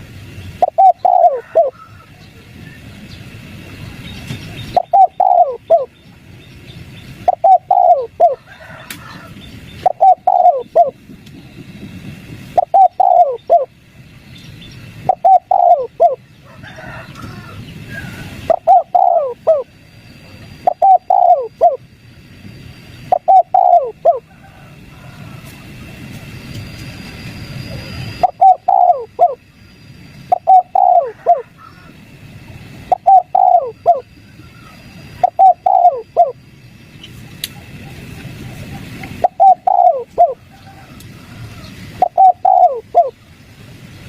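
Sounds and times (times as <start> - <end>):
low hum: 0.0 - 44.0
dove cooing: 0.6 - 2.3, 4.6 - 6.0, 7.2 - 11.0, 12.5 - 13.7, 15.0 - 19.8, 20.6 - 21.8, 23.1 - 25.8, 27.7 - 29.5, 30.3 - 32.0, 32.8 - 36.4, 37.6 - 43.2.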